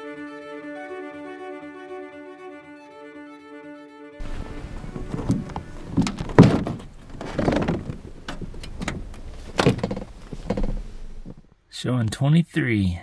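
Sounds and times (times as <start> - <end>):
thumps and knocks: 4.2 - 11.5
rustling: 4.2 - 11.6.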